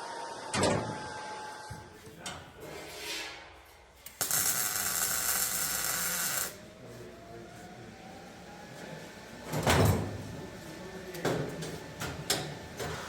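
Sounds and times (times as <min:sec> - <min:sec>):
power tool on metal: 0:04.2 - 0:06.6.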